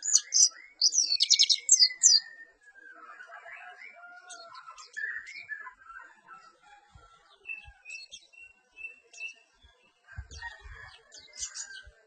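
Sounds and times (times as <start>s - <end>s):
bird chirping and whistling: 0.0s - 2.4s.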